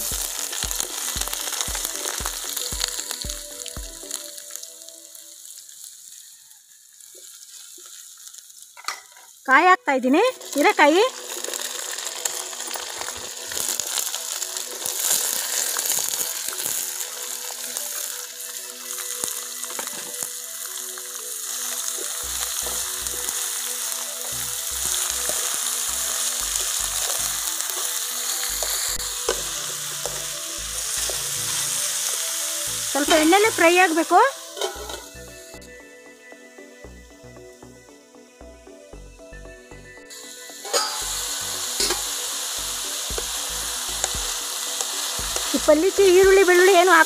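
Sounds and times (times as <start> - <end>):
vegetables sizzling in hot oil: 0.0 - 47.0
spatula scraping metal pan: 34.5 - 35.1, 40.6 - 42.1.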